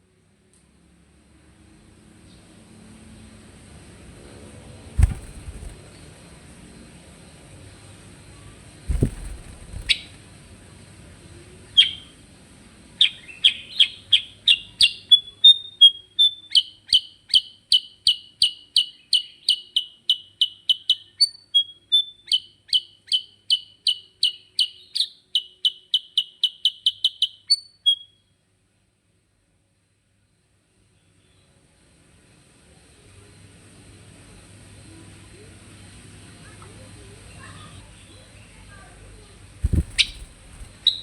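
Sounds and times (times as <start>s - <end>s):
bird singing whistled notes: 39.6s - 41.0s
single bird calls: 39.6s - 41.0s.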